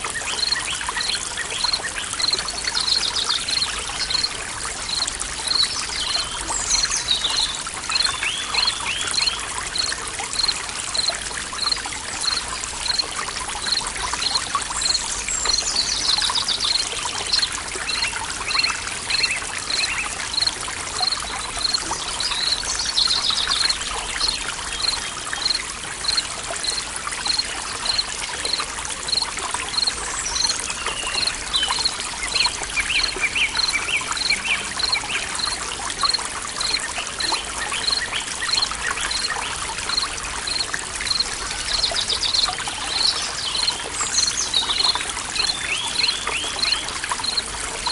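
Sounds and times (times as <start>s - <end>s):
stream trickling: 0.0s - 47.9s
birds singing: 0.1s - 4.3s, 29.7s - 47.4s.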